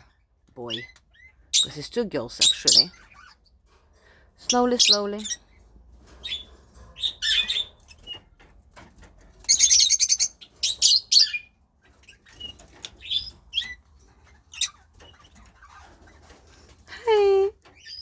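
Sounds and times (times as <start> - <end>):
lovebirds chirping: 0.0 - 3.6, 4.4 - 5.6, 6.2 - 8.3, 9.4 - 18.0
shrill bird chattering: 9.5 - 11.5, 14.4 - 16.0.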